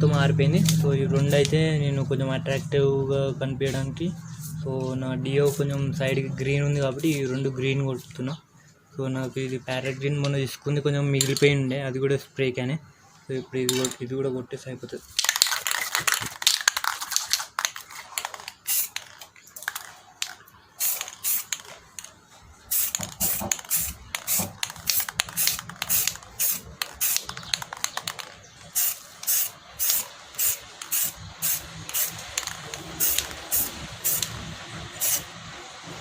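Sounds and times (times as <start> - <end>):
spray can hissing in bursts: 18.2 - 21.8, 22.7 - 36.0.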